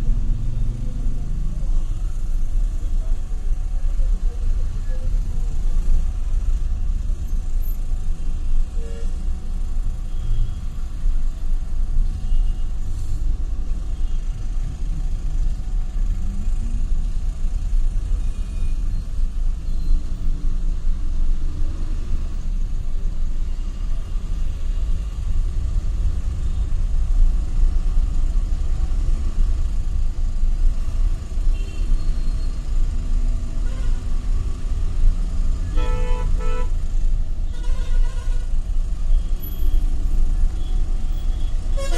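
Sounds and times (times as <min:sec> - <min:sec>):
road traffic rumble: 0:00.0 - 0:41.9
faint horn toots: 0:40.6 - 0:41.9.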